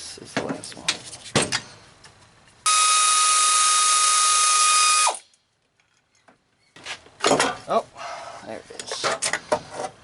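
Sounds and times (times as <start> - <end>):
pneumatic wrench hiss and whine: 2.7 - 5.2.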